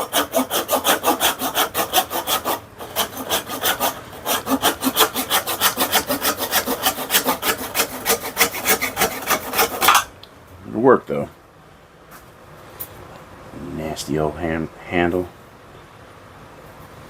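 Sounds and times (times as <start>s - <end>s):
hand saw cutting wood: 0.0s - 10.1s.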